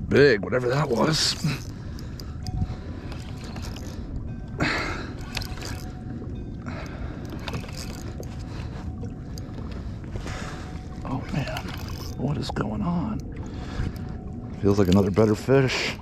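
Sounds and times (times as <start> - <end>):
wind rumble on microphone: 0.0 - 16.0
water splashing against kayak: 10.2 - 12.2.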